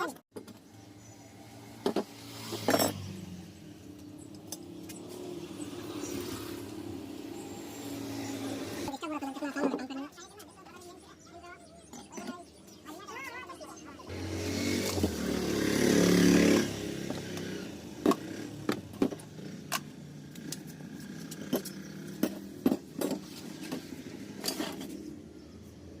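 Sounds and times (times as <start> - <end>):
vehicle engine revving: 14.1 - 25.6.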